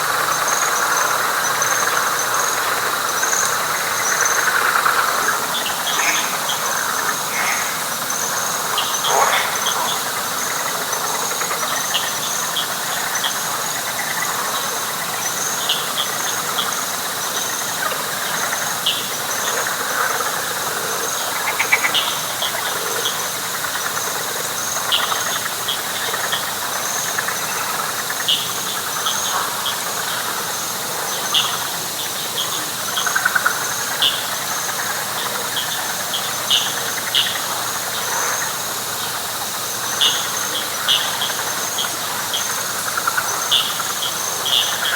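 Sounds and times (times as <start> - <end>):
frogs chorus: 0.0 - 44.9
pulsing insect trill: 0.1 - 44.9.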